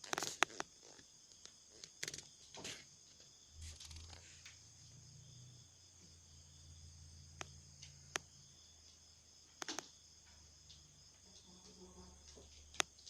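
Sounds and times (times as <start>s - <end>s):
sharp clicks: 0.0s - 2.3s, 9.6s - 9.9s
crickets chirring: 0.0s - 13.0s.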